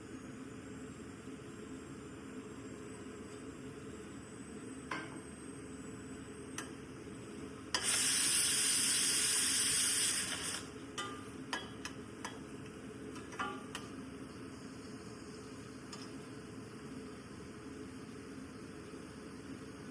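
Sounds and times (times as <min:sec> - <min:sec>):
pan sizzling loudly: 0:07.8 - 0:10.7.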